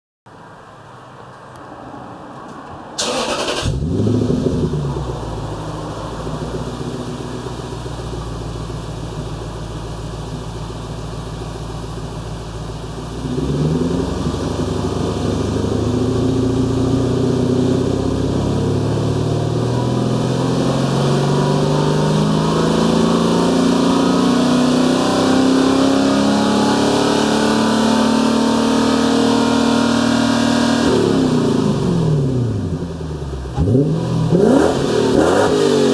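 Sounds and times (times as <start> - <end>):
car engine starting and idling: 2.3 - 28.8, 30.0 - 35.9
engine revving: 3.0 - 7.8, 13.2 - 35.9.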